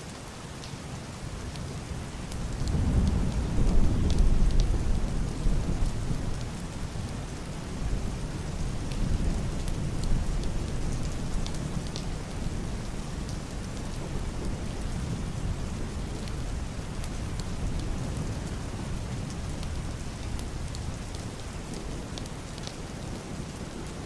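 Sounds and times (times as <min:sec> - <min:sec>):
heavy rain on roof and window: 0:00.0 - 0:24.0
raindrop ticks: 0:01.4 - 0:07.5, 0:08.7 - 0:14.8, 0:16.0 - 0:22.8
distant thunder rumble: 0:02.6 - 0:06.8.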